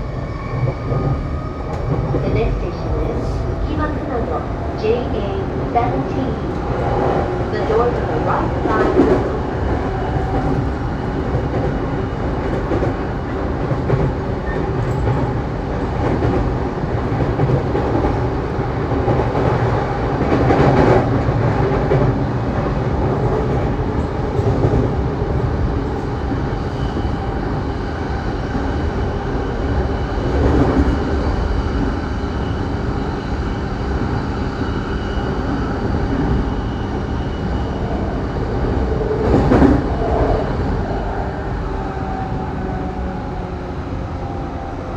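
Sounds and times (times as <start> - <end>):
train wheels rumbling on rails: 0.0 - 44.9
rail-joint clickety-clack: 5.9 - 27.8, 34.0 - 41.1.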